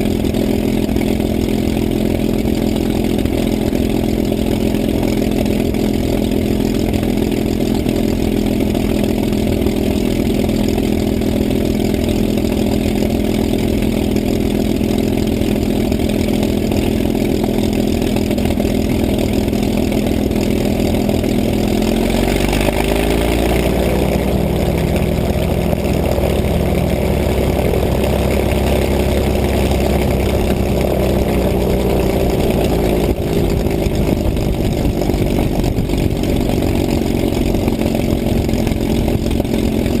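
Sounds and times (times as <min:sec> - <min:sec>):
piston aircraft engine running: 0:00.0 - 0:40.0.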